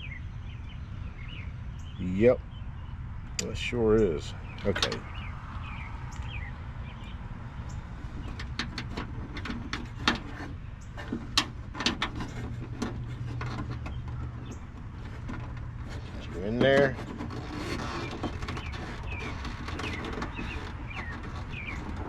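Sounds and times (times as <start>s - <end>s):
plastic clicks and scrapes: 8.0s - 22.0s.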